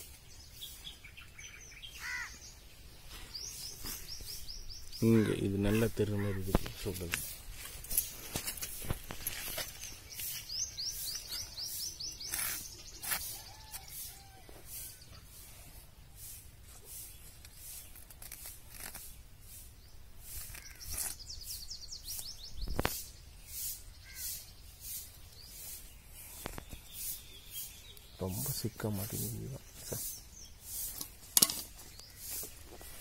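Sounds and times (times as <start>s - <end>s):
knife cutting fishing net: 12.3s - 13.4s, 17.4s - 19.2s, 20.3s - 21.2s.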